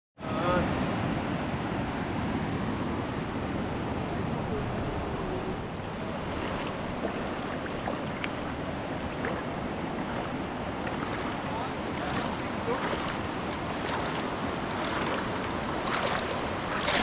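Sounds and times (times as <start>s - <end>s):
flowing water rushing: 0.4s - 17.0s.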